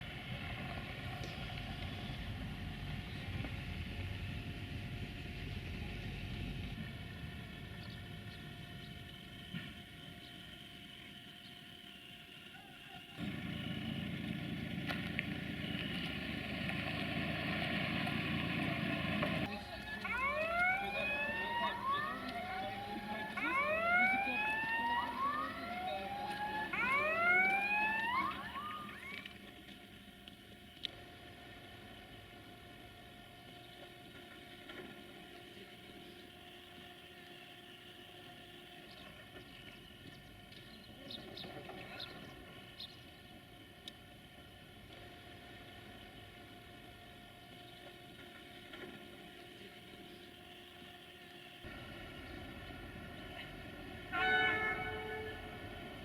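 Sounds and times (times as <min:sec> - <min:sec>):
vehicle engine running: 0:00.0 - 0:29.4
level crossing warning tones: 0:19.4 - 0:29.3.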